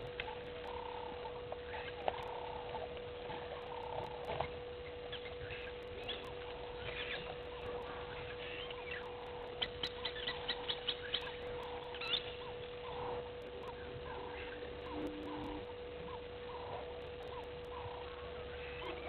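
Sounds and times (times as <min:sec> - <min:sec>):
steady hum: 0:00.0 - 0:19.0
wild birds chirping and whistling: 0:00.0 - 0:19.0.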